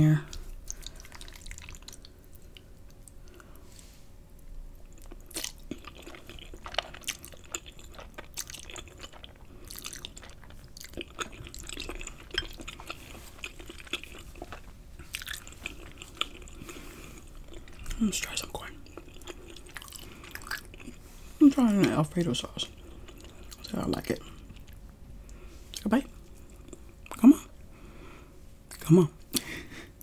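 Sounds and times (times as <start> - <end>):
chewing and slurping noodles: 0.4 - 3.4, 4.9 - 18.0, 18.8 - 21.2, 21.8 - 24.8.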